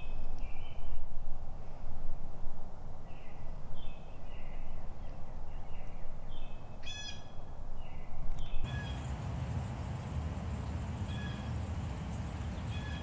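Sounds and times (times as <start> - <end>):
harsh bird call: 8.7 - 9.2, 11.0 - 11.6, 12.5 - 13.0
birds calling high notes: 8.7 - 13.0.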